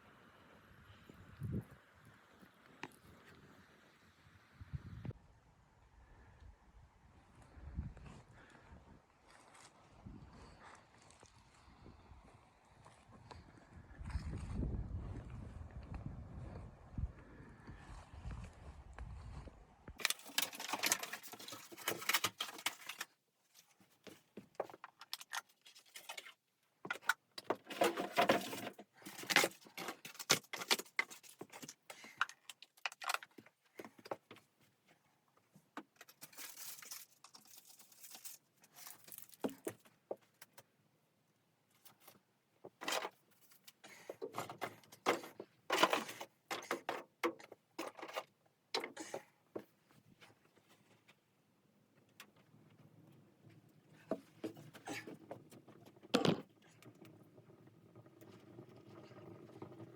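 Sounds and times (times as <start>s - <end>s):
rustling of handled objects: 20.0s - 40.7s, 41.7s - 57.2s.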